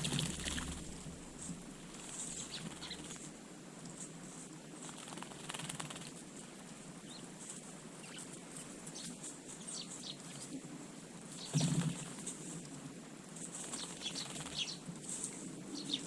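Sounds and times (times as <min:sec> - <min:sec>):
wing flutters: 0:00.0 - 0:03.4, 0:04.0 - 0:06.4, 0:11.3 - 0:12.6, 0:13.4 - 0:16.0
small birds chirping: 0:01.9 - 0:03.3, 0:06.9 - 0:10.6, 0:11.3 - 0:12.3, 0:13.5 - 0:16.0.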